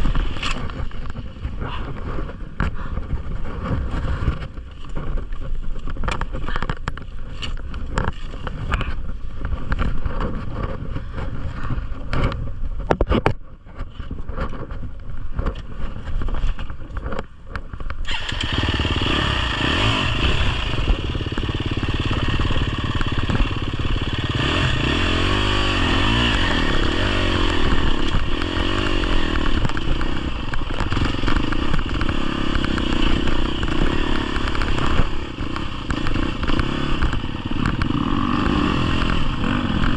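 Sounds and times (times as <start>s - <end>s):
clatter of knocks and scrapes: 0.0s - 17.9s, 26.7s - 39.9s
dirt bike engine revving: 18.0s - 39.9s.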